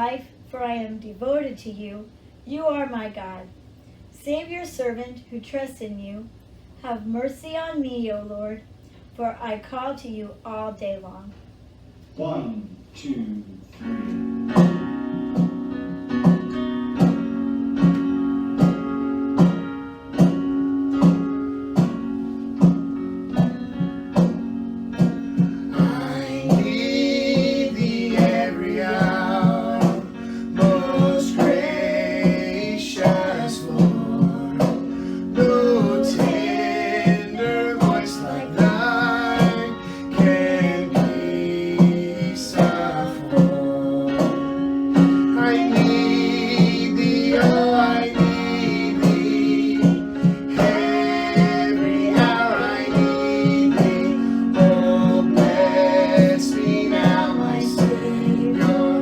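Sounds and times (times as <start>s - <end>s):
acoustic guitar strumming: 13.8s - 59.0s
person singing: 25.7s - 59.0s.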